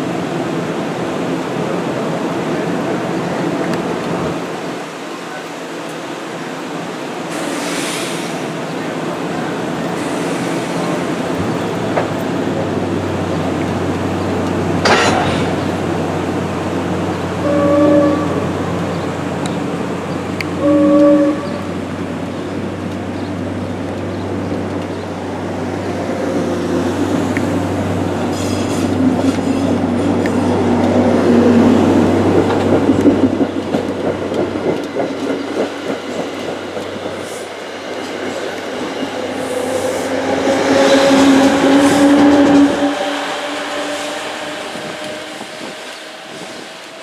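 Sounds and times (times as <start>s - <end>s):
train horn: 17.4s - 18.6s, 20.6s - 21.8s, 39.4s - 46.9s.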